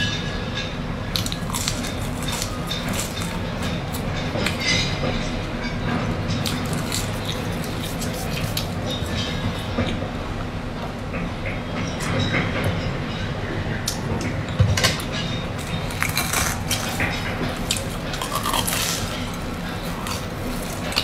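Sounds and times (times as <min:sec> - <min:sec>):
chewing and crunching bread: 0:01.1 - 0:04.9, 0:06.3 - 0:10.0, 0:14.9 - 0:21.0.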